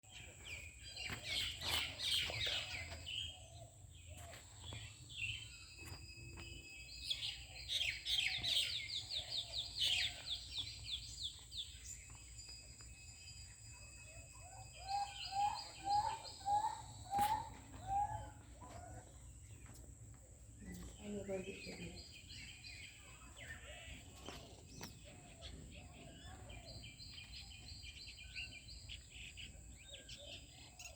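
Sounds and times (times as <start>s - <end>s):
birds chirping and calling: 0.0s - 30.9s
low repeated bird call: 13.0s - 19.8s.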